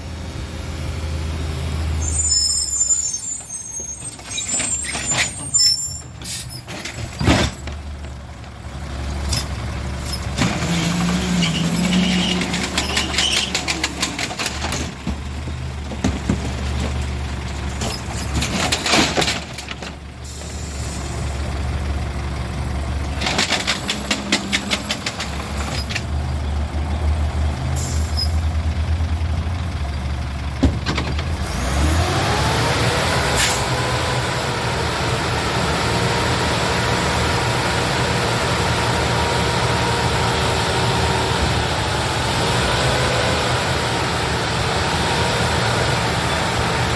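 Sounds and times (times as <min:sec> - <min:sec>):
garbage truck diesel engine: 0:00.0 - 0:46.9
rapid rattling and clanking: 0:09.3 - 0:20.1
air brake hisses: 0:20.3 - 0:21.2.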